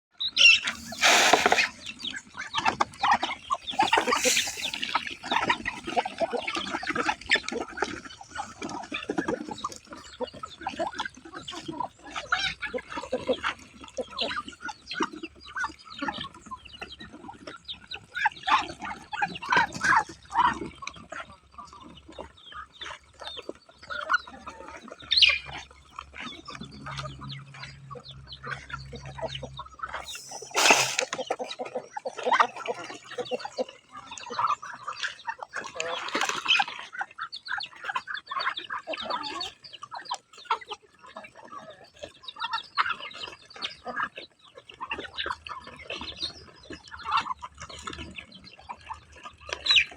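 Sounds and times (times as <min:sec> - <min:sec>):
chickens clucking: 0:00.5 - 0:07.1, 0:29.5 - 0:31.9.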